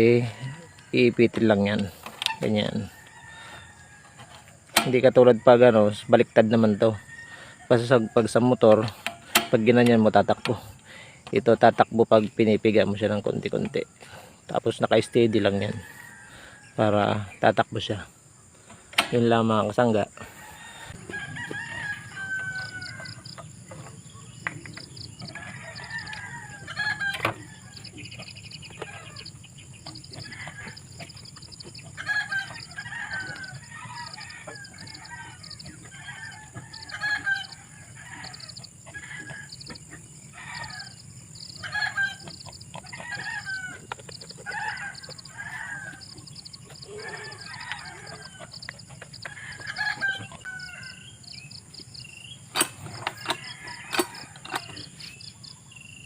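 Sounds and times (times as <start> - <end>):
chickens clucking and calling: 0.0 - 5.8, 20.0 - 56.0
insects trilling: 0.0 - 56.0.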